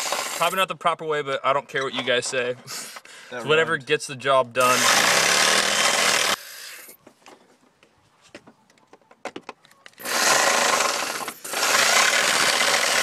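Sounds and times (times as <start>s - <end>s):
power drill cutting sheet metal: 0.0s - 0.6s, 4.6s - 6.4s, 10.0s - 13.0s.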